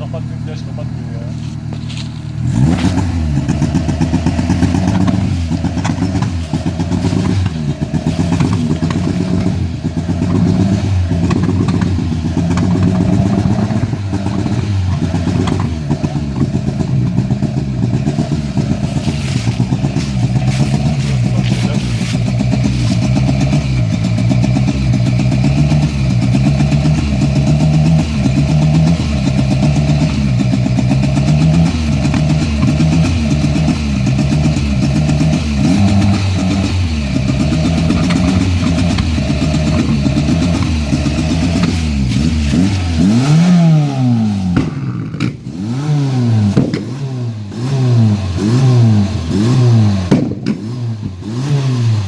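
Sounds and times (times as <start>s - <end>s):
engine revving: 0.0s - 52.0s
exhaust pops: 1.3s - 45.6s, 46.2s - 51.3s.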